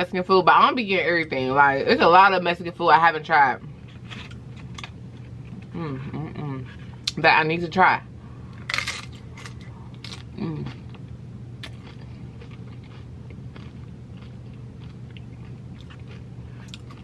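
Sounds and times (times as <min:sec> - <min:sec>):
chip crunching and chewing: 0:03.9 - 0:05.7, 0:08.6 - 0:17.0
person humming: 0:05.7 - 0:06.6, 0:10.4 - 0:10.7.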